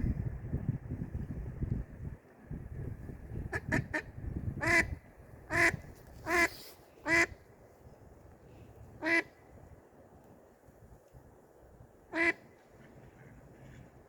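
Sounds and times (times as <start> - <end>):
duck quacking: 5.5 - 6.5.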